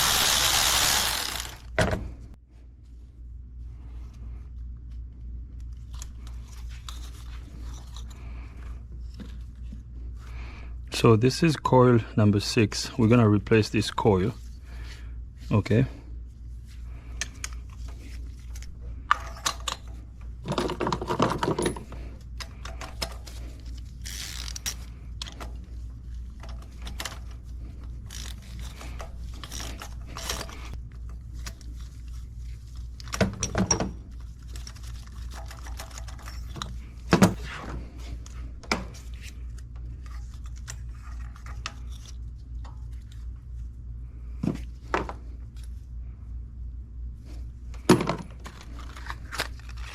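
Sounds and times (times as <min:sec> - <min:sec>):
hand tools clicking and scraping: 0:00.0 - 0:01.6, 0:26.3 - 0:30.8
steady low hum: 0:00.0 - 0:49.9.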